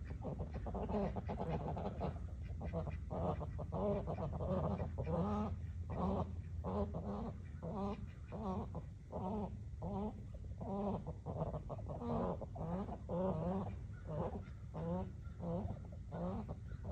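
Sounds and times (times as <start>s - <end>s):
fowl calling: 0.0s - 16.9s.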